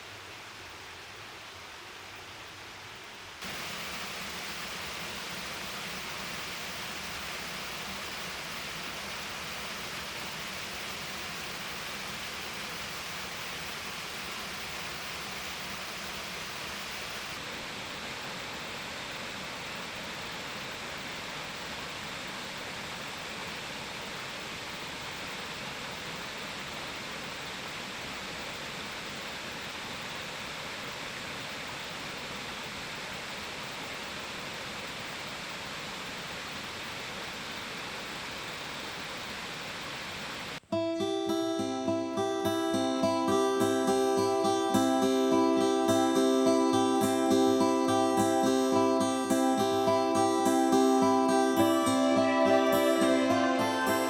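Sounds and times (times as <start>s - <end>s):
stream water flowing over rocks: 3.4s - 40.6s.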